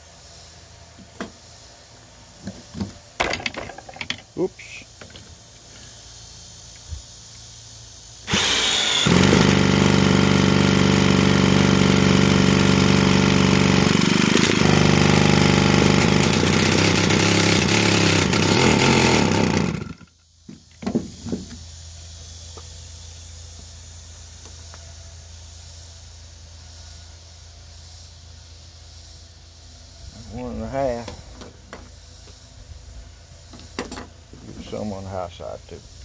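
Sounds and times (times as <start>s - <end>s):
chainsaw engine running: 8.2s - 20.2s.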